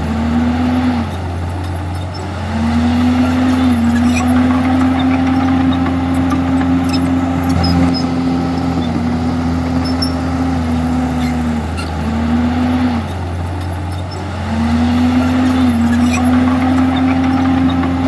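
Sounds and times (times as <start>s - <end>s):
bulldozer diesel engine running: 0.0s - 18.0s.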